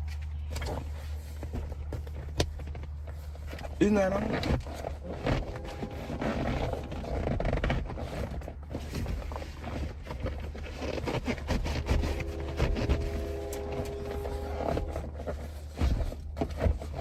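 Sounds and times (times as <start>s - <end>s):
fabric and plastic rustling: 0.0s - 17.0s
steady low rumble: 0.0s - 17.0s
humming tone: 12.0s - 15.1s.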